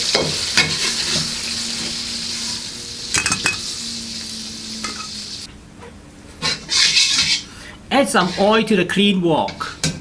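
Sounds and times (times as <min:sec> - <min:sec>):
chicken sizzling in a wok: 0:00.0 - 0:05.5
metal spatula clinking on wok: 0:03.2 - 0:03.6.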